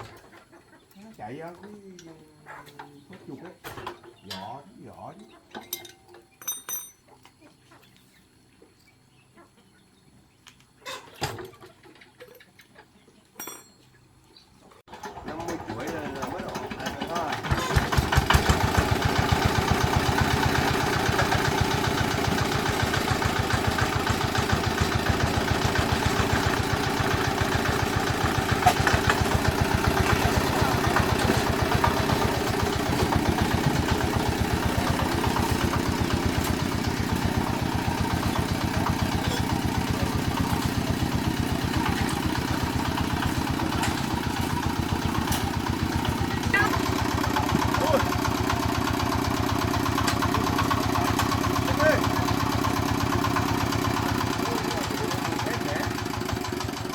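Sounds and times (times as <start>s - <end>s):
diesel engine idling: 14.9s - 56.9s.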